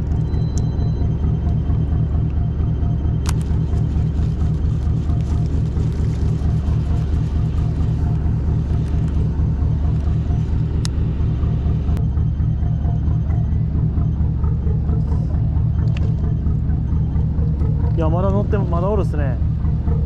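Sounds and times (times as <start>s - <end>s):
boat engine running: 0.0s - 20.0s
sharp clicks: 3.2s - 4.0s.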